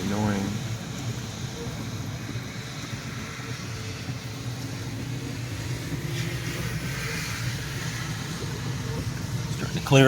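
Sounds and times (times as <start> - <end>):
engine and road drone inside cab: 0.0 - 10.0
hiss: 2.4 - 9.5.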